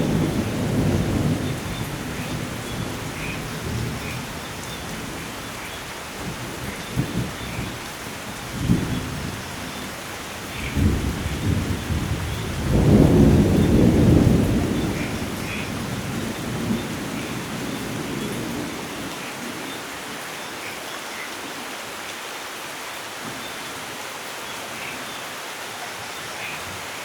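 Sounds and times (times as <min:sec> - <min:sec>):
rolling thunder: 0:00.0 - 0:05.3, 0:10.5 - 0:19.0
steady rainfall: 0:00.0 - 0:27.0.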